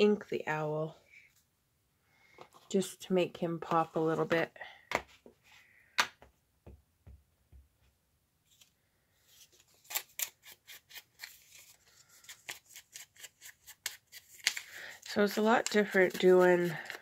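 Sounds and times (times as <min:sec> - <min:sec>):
scissors snipping paper: 0:09.8 - 0:11.5, 0:12.2 - 0:17.0.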